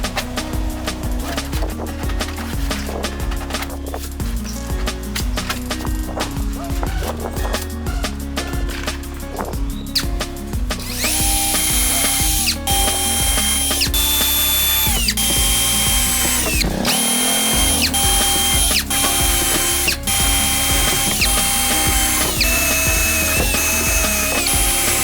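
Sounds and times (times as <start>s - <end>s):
background music: 0.0s - 25.0s
electric drill whining: 10.9s - 25.0s.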